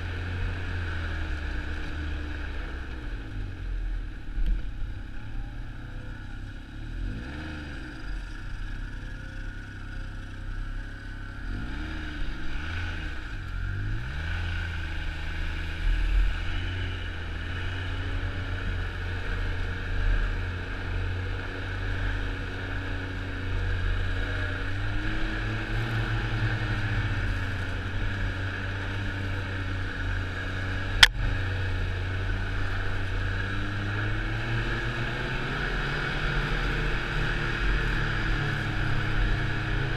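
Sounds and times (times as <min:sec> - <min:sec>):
snowmobile engine running: 0:13.6 - 0:39.9.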